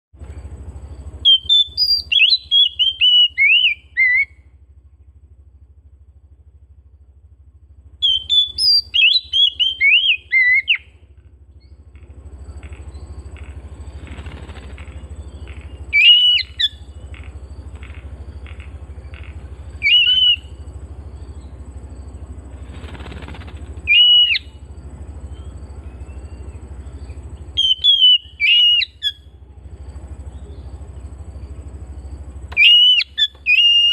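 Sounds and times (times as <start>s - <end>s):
steady low hum: 0.1s - 33.9s
bird singing whistled notes: 0.8s - 4.5s, 8.0s - 11.8s, 14.8s - 22.3s, 23.0s - 29.4s, 30.3s - 33.9s.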